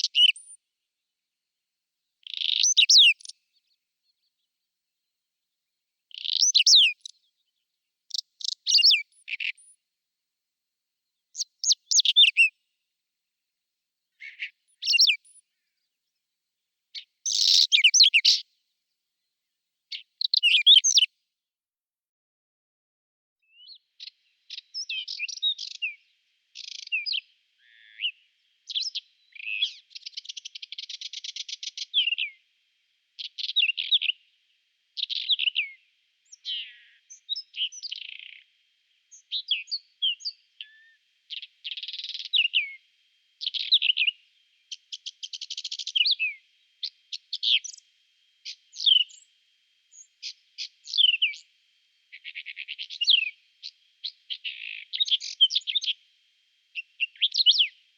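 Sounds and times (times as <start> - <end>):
bird singing scratchy phrases: 0.0 - 0.6, 2.2 - 4.3, 6.1 - 9.8, 11.3 - 12.5, 14.2 - 15.7, 16.9 - 18.4, 19.9 - 21.1, 23.4 - 32.4, 33.2 - 34.2, 35.0 - 38.5, 39.1 - 42.8, 43.4 - 49.3, 49.9 - 51.5, 52.1 - 56.1, 56.7 - 57.9.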